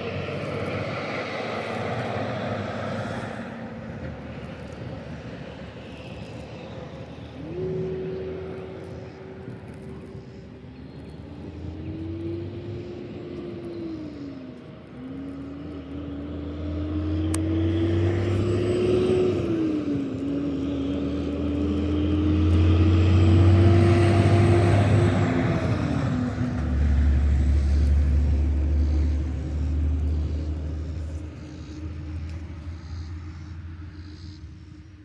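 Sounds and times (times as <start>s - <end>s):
engine droning: 0.0s - 35.0s.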